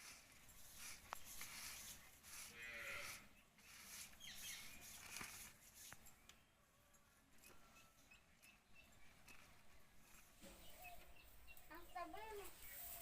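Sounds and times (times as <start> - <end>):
faint bird chirps: 3.3 - 13.0.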